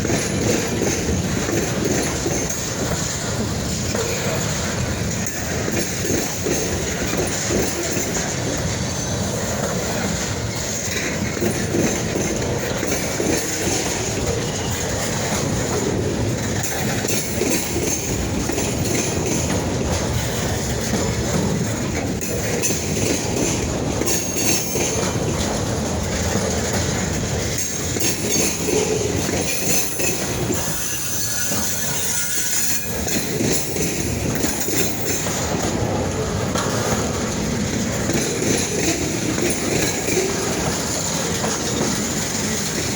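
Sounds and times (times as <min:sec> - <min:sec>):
train wheels clacking on rails: 0:00.0 - 0:42.9
faint wheel squeal: 0:30.6 - 0:32.9.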